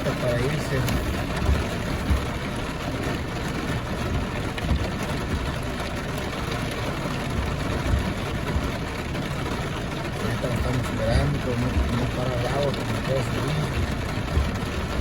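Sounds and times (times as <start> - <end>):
soft low thumps: 0.0 - 6.6, 7.2 - 9.0, 13.7 - 15.0
steady rain: 0.0 - 15.0
truck engine idling: 0.0 - 15.0.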